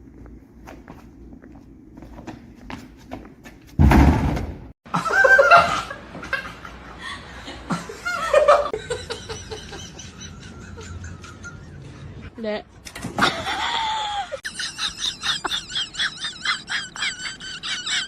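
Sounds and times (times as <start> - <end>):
people laughing: 4.9 - 12.3, 13.2 - 18.0.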